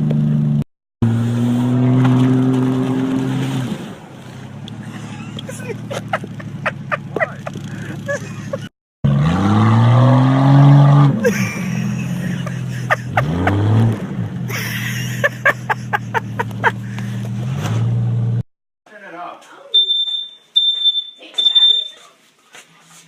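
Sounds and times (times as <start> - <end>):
car engine revving: 0.0 - 18.4.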